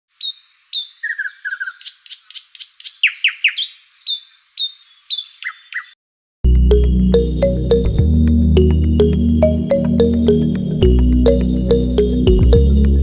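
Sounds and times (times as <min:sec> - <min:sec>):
songbird chirping: 0:00.1 - 0:06.0
music with deep bass: 0:06.5 - 0:13.0.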